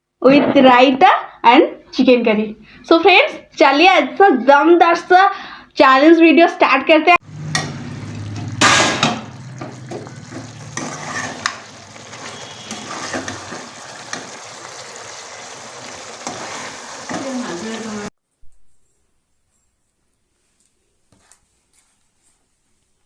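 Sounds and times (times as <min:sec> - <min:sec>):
food sizzling in a pan: 0:07.2 - 0:18.1.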